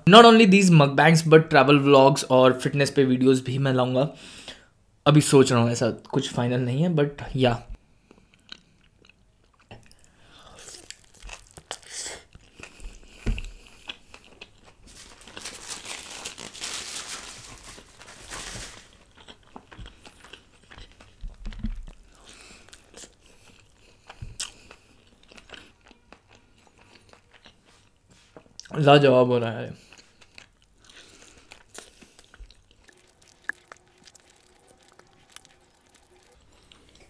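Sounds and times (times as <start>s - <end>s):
biting and chewing fried chicken: 8.0s - 16.7s, 17.8s - 28.8s, 29.8s - 37.0s.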